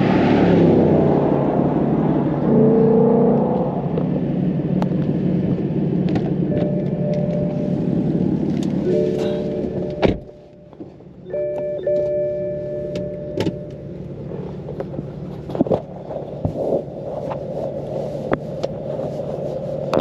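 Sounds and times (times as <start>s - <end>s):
car engine running at low pitch: 0.0s - 20.0s.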